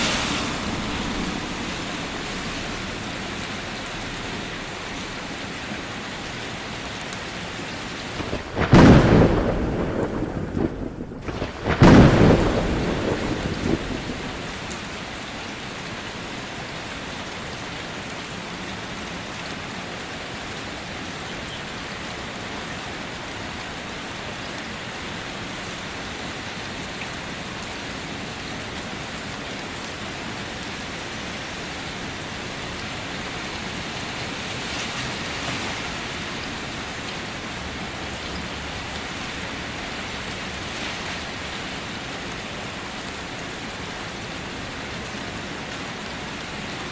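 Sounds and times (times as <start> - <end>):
thunder rumble: 0.0 - 5.6, 8.0 - 15.2
heavy rain falling: 0.0 - 46.9.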